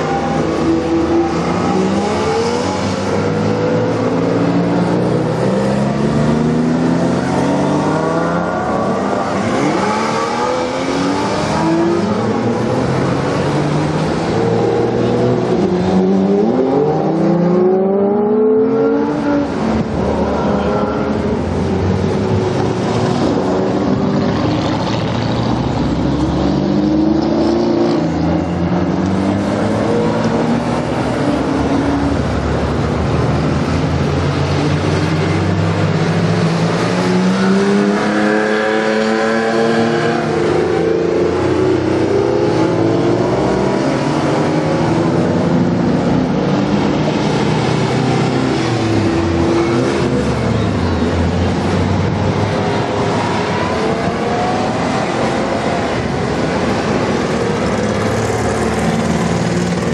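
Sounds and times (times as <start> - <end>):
sports car engines revving: 0.0 - 59.9.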